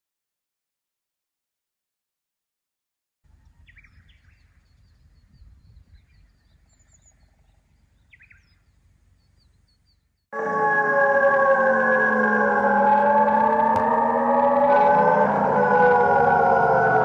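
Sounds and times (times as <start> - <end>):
small birds chirping: 3.3 - 10.2.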